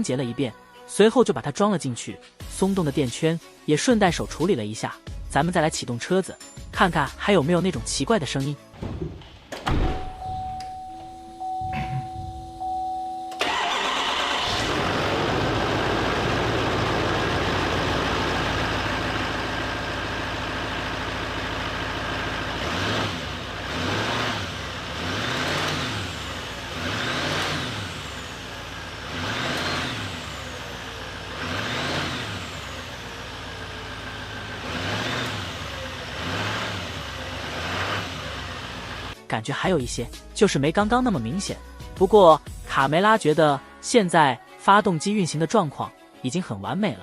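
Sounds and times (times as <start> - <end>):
pickup engine cranking and revving: 13.4 - 39.2.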